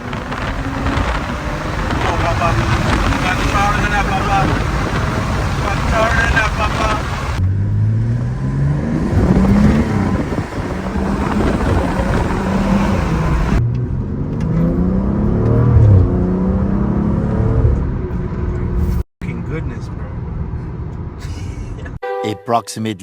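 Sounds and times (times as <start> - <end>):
car engine revving: 0.0 - 21.7.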